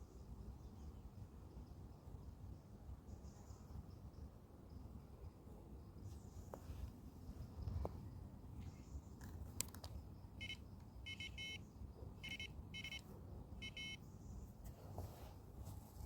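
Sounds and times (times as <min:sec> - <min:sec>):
short high electronic beeps: 0:10.4 - 0:11.6, 0:12.2 - 0:13.0, 0:13.6 - 0:14.0.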